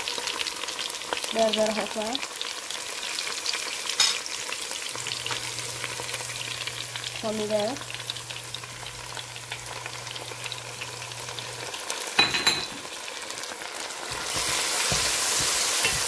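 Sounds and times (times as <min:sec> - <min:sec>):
onions sizzling in hot oil: 0:00.0 - 0:16.0
spatula scraping pot: 0:14.0 - 0:16.0.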